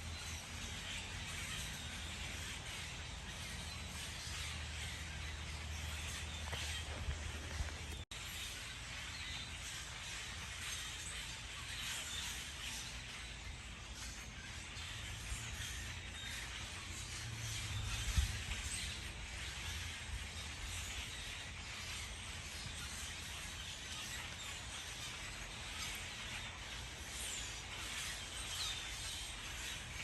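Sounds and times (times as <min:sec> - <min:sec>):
wind rumble on microphone: 0:06.0 - 0:08.0, 0:17.2 - 0:21.2.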